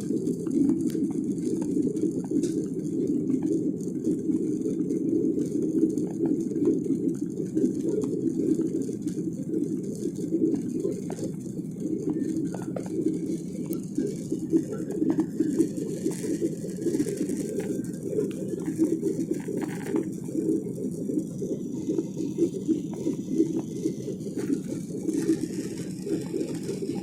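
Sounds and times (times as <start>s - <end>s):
jet engine cabin roar: 10.1s - 27.0s.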